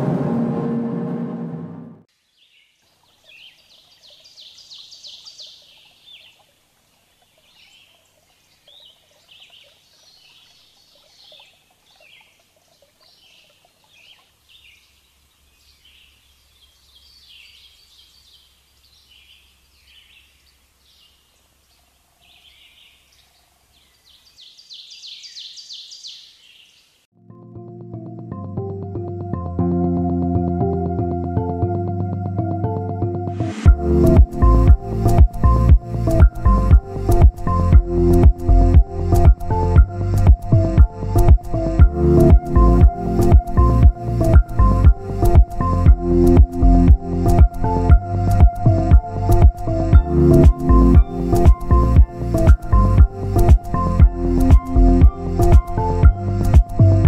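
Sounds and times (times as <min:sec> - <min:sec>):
songbirds chirping and trilling: 0:02.2 - 0:27.0.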